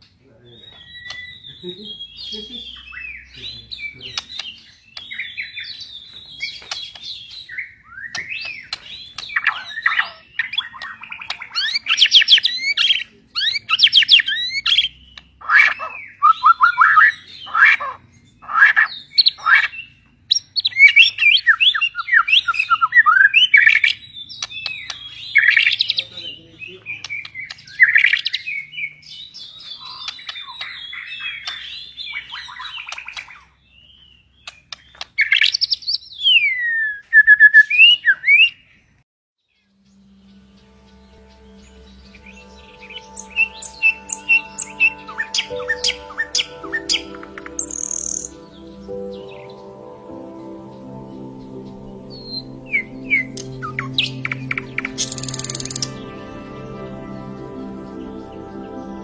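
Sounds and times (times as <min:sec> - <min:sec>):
songbird singing: 0:00.0 - 0:59.0.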